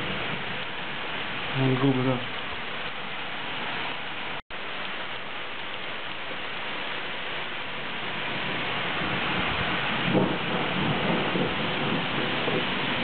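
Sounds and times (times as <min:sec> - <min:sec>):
thunder rumbling: 0:00.0 - 0:00.9, 0:08.0 - 0:13.0
heavy rain hissing: 0:00.0 - 0:13.0.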